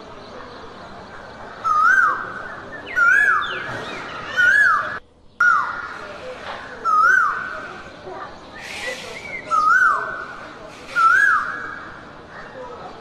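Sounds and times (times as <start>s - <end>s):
bird whistled call: 2.8s - 5.7s, 8.6s - 11.9s
jungle background hiss: 5.8s - 12.2s.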